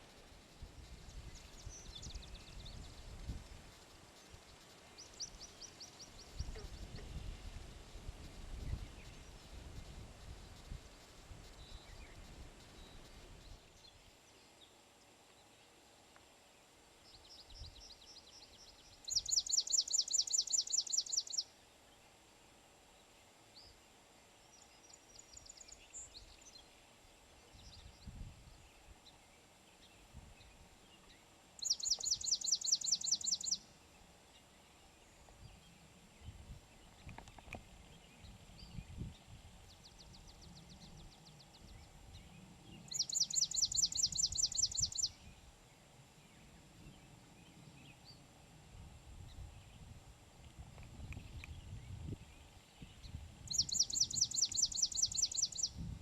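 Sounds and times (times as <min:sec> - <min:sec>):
sparrow singing trills: 0:00.8 - 0:03.2, 0:17.1 - 0:21.5, 0:27.5 - 0:33.7, 0:35.5 - 0:45.4, 0:51.1 - 0:56.0.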